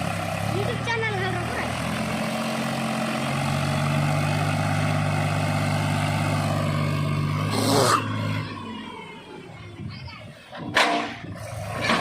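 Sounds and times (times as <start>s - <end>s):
heavy diesel engine under load: 0.0s - 12.0s.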